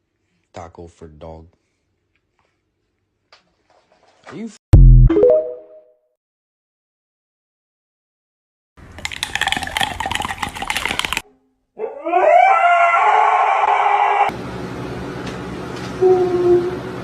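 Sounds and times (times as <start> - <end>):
dog howling: 11.8 - 14.3.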